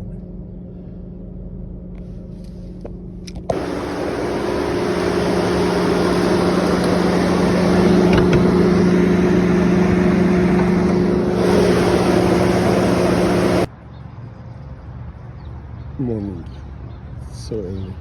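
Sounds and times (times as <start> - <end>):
radiator cooling fan running: 0.0 - 13.7.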